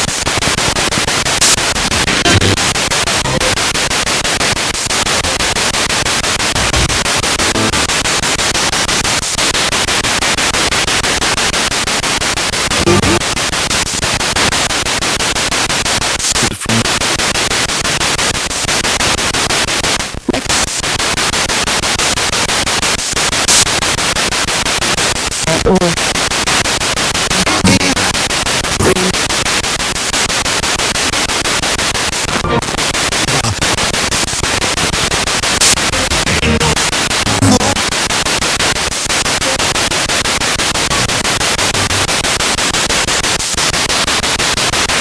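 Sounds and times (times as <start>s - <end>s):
radio static with rapid scanning: 0.0s - 45.0s
snatches of broadcast sound: 0.0s - 45.0s.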